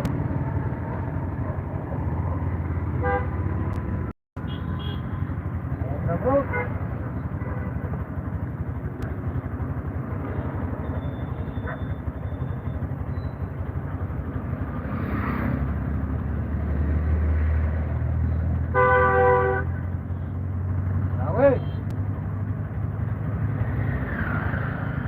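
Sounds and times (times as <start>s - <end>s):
road traffic rumble: 0.0s - 25.0s
vehicle horn honk: 3.0s - 3.4s, 4.4s - 5.2s, 18.7s - 19.8s.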